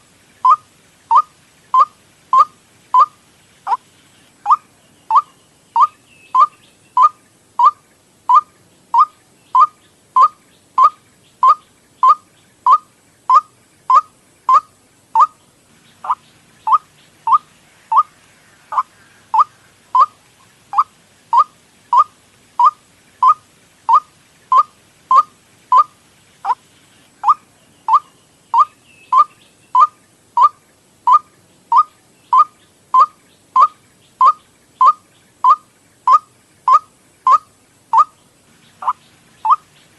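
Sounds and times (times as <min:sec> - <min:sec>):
waterhen call sharp notes: 0:00.4 - 0:03.8, 0:18.7 - 0:26.6, 0:27.2 - 0:38.2, 0:38.8 - 0:39.7.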